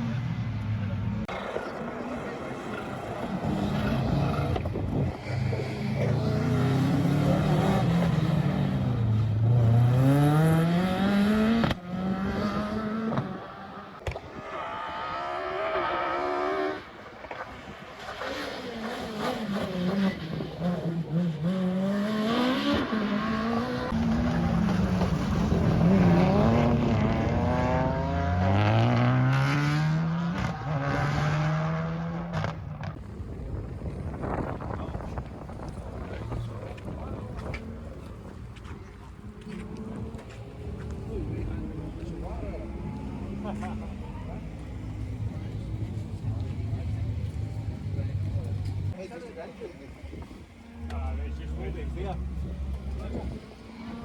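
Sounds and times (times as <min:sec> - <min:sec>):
rally car engine revving hard: 0:03.0 - 0:13.9, 0:18.1 - 0:33.0.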